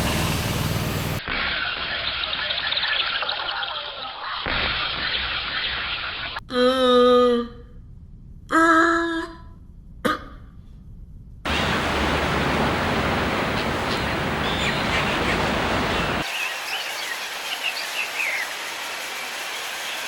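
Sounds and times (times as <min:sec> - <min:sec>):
small birds chirping: 0:11.5 - 0:18.6
steady rushing noise: 0:11.5 - 0:20.0.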